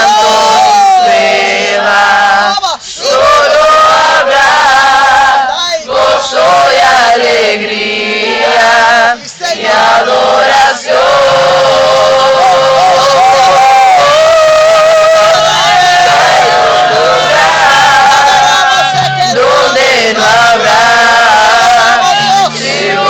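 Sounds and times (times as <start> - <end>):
group singing worship song: 0.0 - 23.0.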